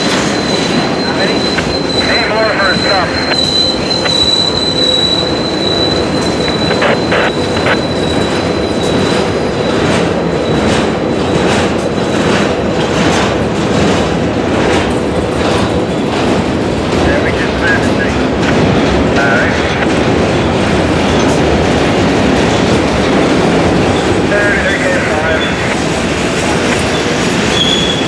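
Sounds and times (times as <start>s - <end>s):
high wheel squeal: 0.0s - 11.4s, 26.8s - 28.0s
freight train wheels clattering: 0.0s - 28.0s.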